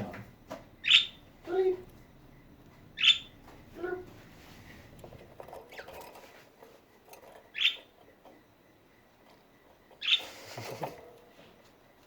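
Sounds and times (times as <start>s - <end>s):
budgerigars chirping: 0.8s - 1.3s, 3.0s - 3.4s, 7.5s - 7.9s, 10.0s - 10.4s
light scratching and ticking: 3.5s - 8.6s.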